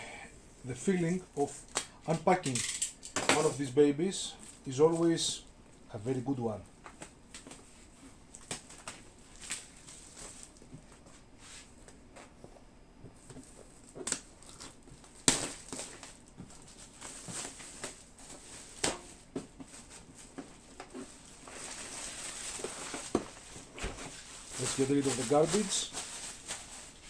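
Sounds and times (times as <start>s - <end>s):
packaging rustling: 6.9s - 11.2s, 13.2s - 27.0s
knocks and clicks of packaging: 22.5s - 24.2s.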